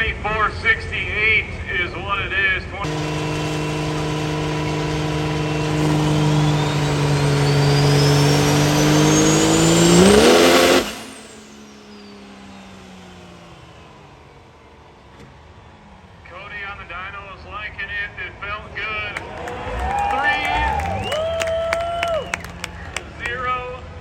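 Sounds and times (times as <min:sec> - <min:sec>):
diesel truck engine under load: 0:02.7 - 0:23.4
high whine of dyno rollers: 0:02.8 - 0:16.9, 0:18.6 - 0:23.0.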